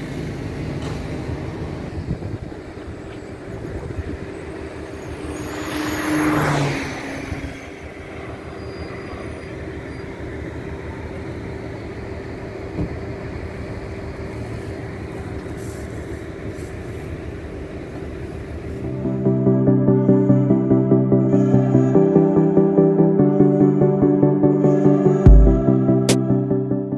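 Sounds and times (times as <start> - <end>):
train coaches rumbling on track: 0.0 - 18.9.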